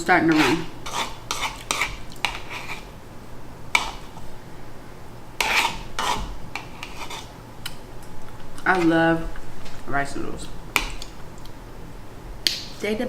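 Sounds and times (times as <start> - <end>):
utensil scraping and tapping a dish: 0.2 - 2.8, 3.7 - 4.2, 5.4 - 7.3.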